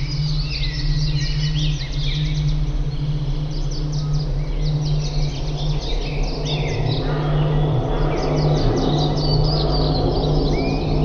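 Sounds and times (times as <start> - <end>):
steady low hum: 0.0 - 11.0
wild birds chirping and calling: 3.4 - 11.0.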